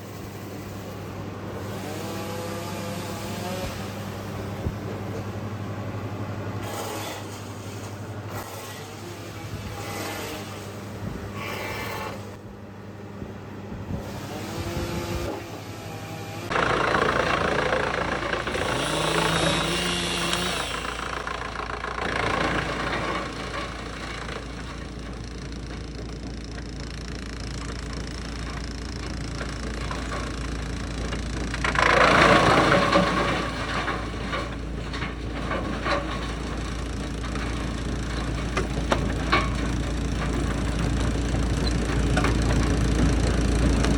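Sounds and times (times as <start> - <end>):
wood chipper engine running: 0.0 - 43.9
wood chipping burst: 16.1 - 25.9, 26.6 - 34.6.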